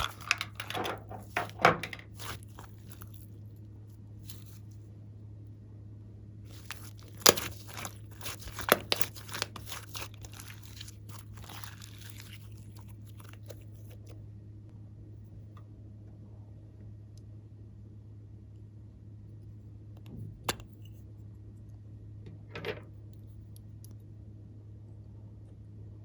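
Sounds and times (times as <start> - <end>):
slime crackling and popping: 2.1 - 3.2, 6.5 - 14.0.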